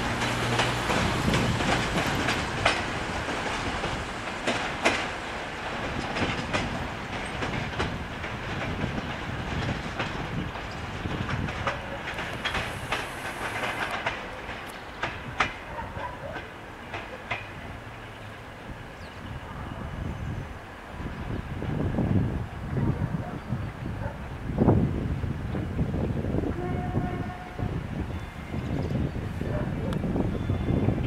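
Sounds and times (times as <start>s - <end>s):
train wheels clicking over rail joints: 0.0s - 18.4s
train running rumble: 0.0s - 31.0s.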